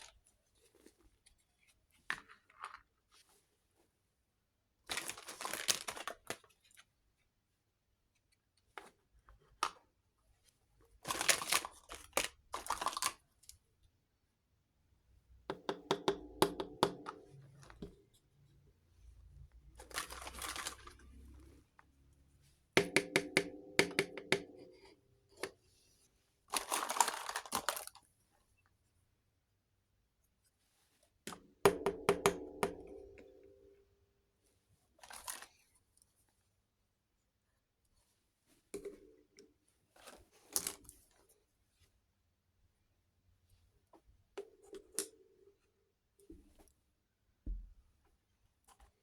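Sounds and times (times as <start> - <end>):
plastic toys clicking and rattling: 11.1 - 13.2, 19.8 - 21.2, 26.5 - 28.0.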